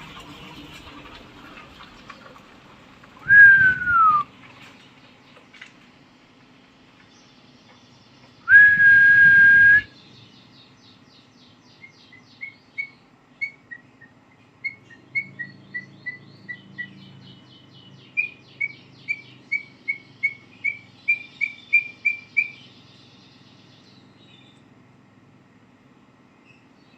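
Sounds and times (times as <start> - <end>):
loud whistled note: 3.2 - 4.3, 8.5 - 9.9.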